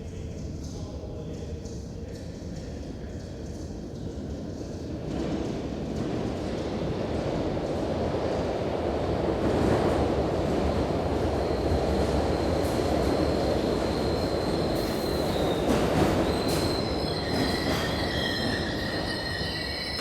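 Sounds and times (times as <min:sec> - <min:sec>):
underground train rumbling: 0:00.0 - 0:20.0
high wheel squeal: 0:13.2 - 0:20.0.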